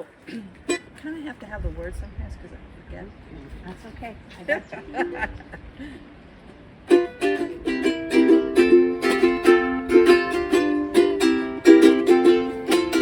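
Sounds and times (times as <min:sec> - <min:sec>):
ukulele strumming: 0:00.7 - 0:01.0, 0:06.8 - 0:13.0.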